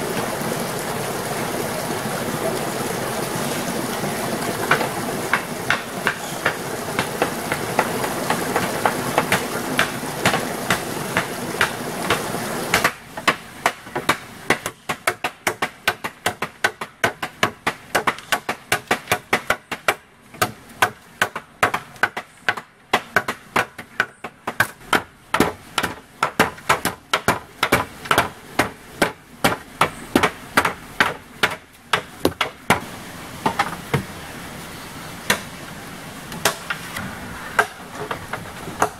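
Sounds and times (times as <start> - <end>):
steady rushing noise: 0.0 - 13.6, 32.1 - 38.9.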